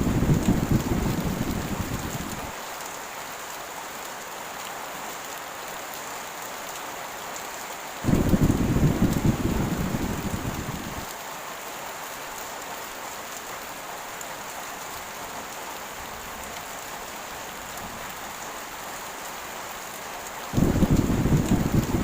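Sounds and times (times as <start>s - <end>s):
low rumble of thunder: 0.0s - 2.5s, 8.1s - 11.1s, 20.6s - 22.0s
heavy rain falling: 0.0s - 22.0s.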